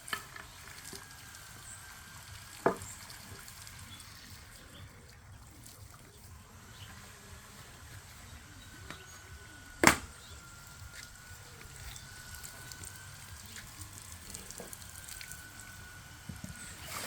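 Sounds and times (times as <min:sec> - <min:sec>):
sharp knock: 0:09.8 - 0:10.1.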